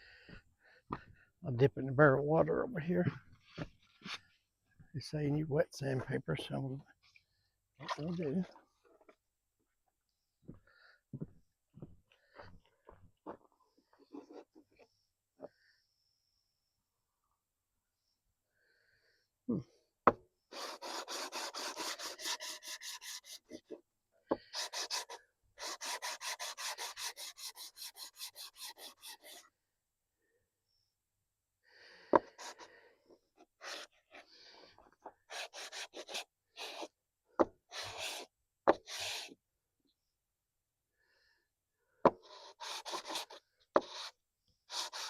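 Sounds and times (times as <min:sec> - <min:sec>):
metal rubbing on wet sandpaper: 0:20.6 - 0:23.6, 0:24.5 - 0:29.4, 0:35.3 - 0:36.9, 0:42.4 - 0:45.0.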